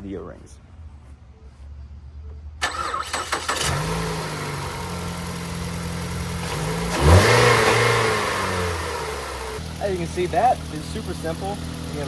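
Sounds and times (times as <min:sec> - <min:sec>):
car engine idling: 0:02.6 - 0:12.0
starter cranking engine: 0:02.6 - 0:12.0.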